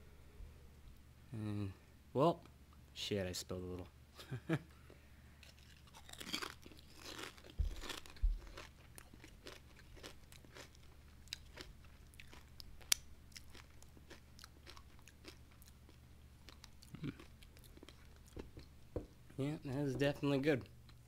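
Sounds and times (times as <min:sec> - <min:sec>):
person crunching a crisp chip: 0:05.4 - 0:15.9.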